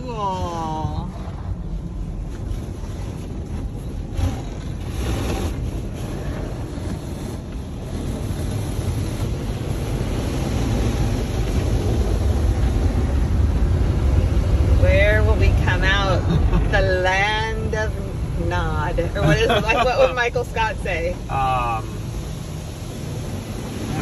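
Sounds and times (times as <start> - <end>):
car wash machinery rumble: 0.0 - 24.0
water spraying on car: 0.0 - 24.0.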